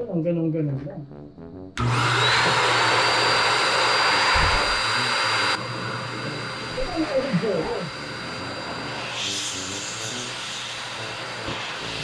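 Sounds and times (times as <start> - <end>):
electric motor whining with air rush: 1.8 - 12.0.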